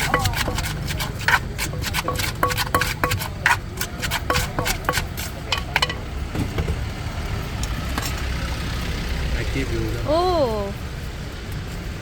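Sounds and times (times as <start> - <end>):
pestle pounding in a clay mortar: 0.0 - 6.8.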